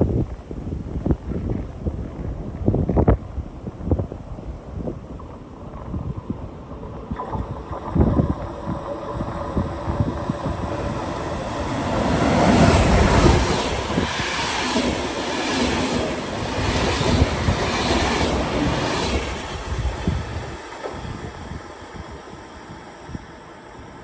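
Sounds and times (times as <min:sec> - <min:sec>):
train passing: 0:06.5 - 0:24.0
train wheels clattering: 0:08.2 - 0:22.8.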